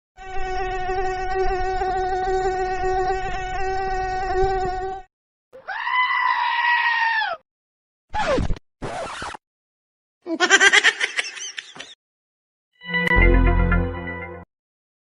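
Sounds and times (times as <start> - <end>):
high-pitched cries: 5.6 - 7.4.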